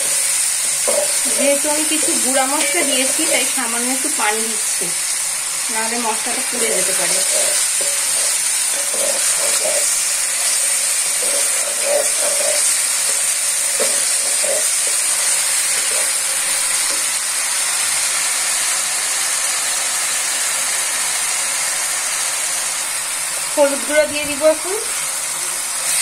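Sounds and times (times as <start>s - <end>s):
wooden spatula scraping a pan: 0.0s - 3.6s, 6.5s - 17.1s
spice paste sizzling in oil: 0.0s - 26.0s.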